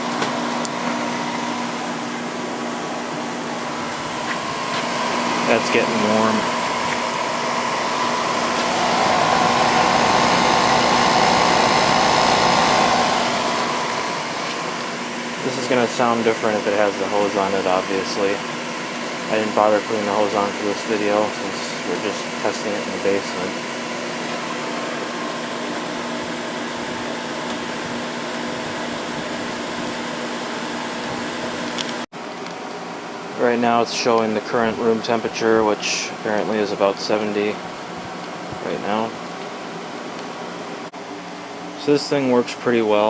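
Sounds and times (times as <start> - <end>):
air conditioner blowing air: 0.0 - 43.0
air conditioner hum: 0.0 - 43.0.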